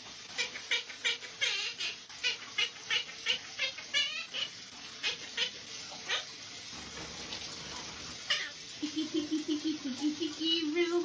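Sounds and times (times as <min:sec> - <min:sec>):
parrot chirping: 0:00.4 - 0:06.3, 0:08.3 - 0:08.6
parrot warbling call: 0:00.4 - 0:06.3, 0:08.3 - 0:08.6.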